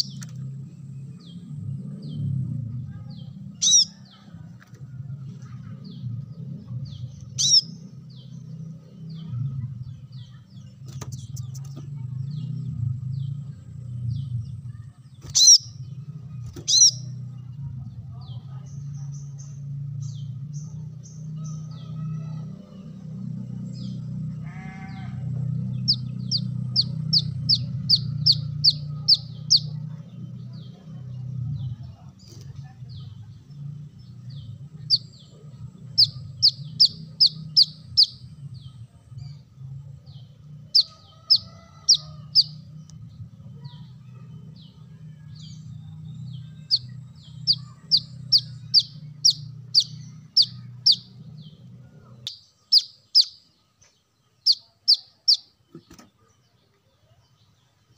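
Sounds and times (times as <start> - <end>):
steady low hum: 0.0 - 57.9
bird song high repeated notes: 7.4 - 7.8, 35.9 - 38.2, 46.3 - 51.5, 52.2 - 53.6, 54.3 - 55.6.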